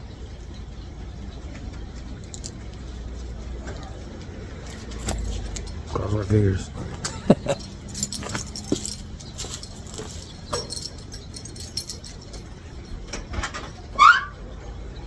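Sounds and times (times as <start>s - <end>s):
car keys jingling: 2.2s - 2.8s, 4.6s - 14.2s.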